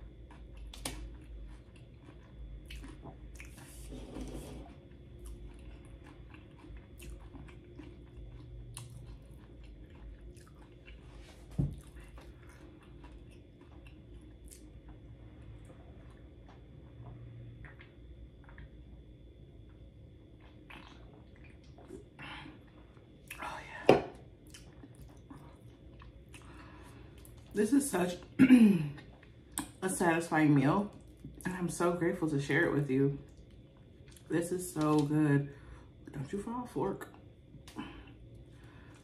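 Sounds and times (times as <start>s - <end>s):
close chewing and crunching: 0.0s - 3.9s, 4.7s - 19.0s, 19.6s - 23.5s, 24.4s - 27.6s, 33.3s - 35.2s.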